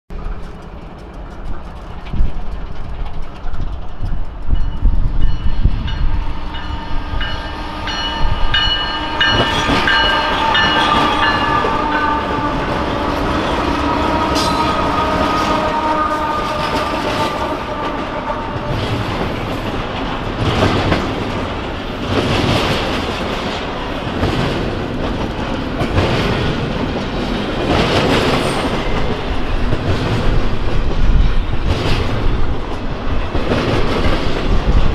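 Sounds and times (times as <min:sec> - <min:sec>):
train wheels clattering: 0:00.1 - 0:34.9
locomotive horn: 0:06.0 - 0:19.7.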